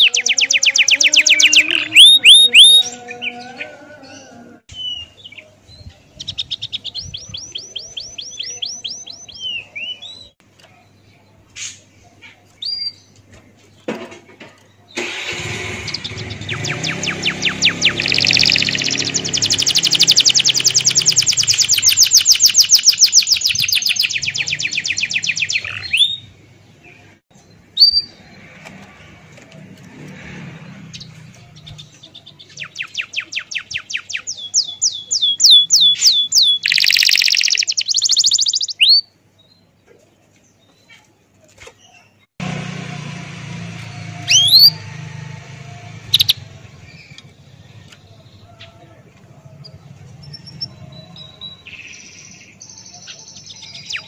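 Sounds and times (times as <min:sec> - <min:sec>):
bird-like chirping trills: 0:00.0 - 0:03.2, 0:15.8 - 0:26.3, 0:30.6 - 0:39.8, 0:44.0 - 0:44.9, 0:45.9 - 0:48.8.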